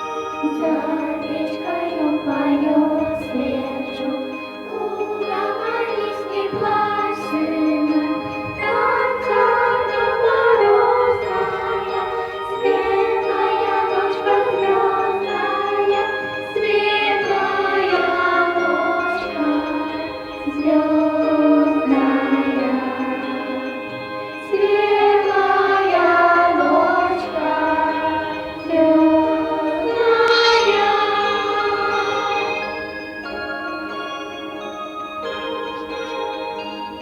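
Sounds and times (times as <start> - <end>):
children's choir singing: 0.0 - 37.0
instrumental accompaniment: 0.0 - 37.0
light chiming percussion: 0.0 - 37.0.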